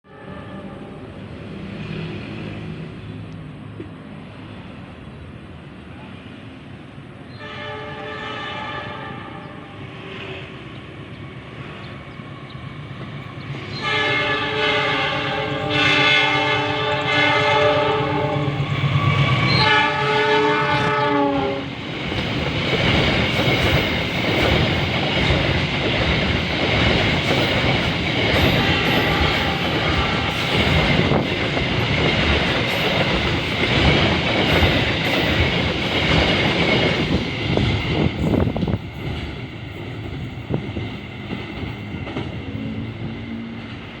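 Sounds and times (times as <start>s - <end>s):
train horn blasts: 0.0s - 1.2s, 7.3s - 10.5s, 13.7s - 21.8s, 28.4s - 30.8s.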